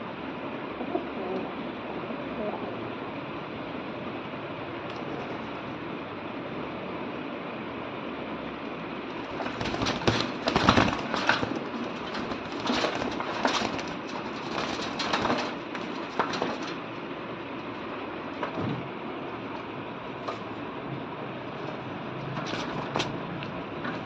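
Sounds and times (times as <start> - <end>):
pigeon wing slaps and scuffling: 9.1 - 17.0, 21.5 - 24.0.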